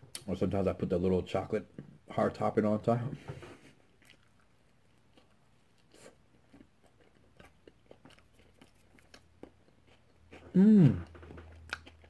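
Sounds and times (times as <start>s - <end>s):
chewing bread: 3.8s - 12.0s.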